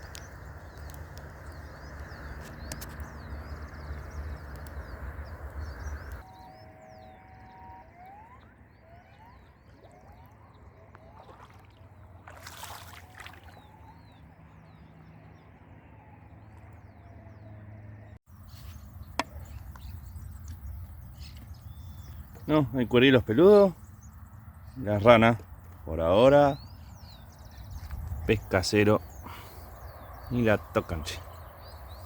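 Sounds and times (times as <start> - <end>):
water sloshing: 9.4 - 14.1.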